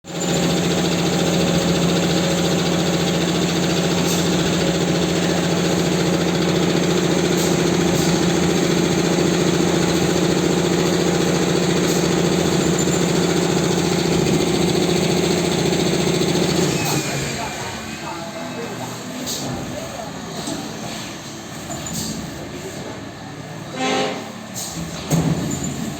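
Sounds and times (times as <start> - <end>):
packing machine droning: 0.1 - 20.8.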